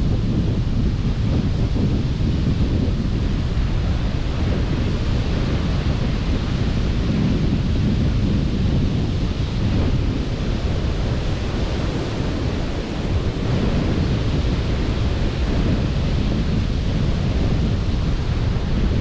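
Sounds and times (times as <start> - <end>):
wind on microphone: 0.0 - 19.0
sea surf: 9.1 - 19.0.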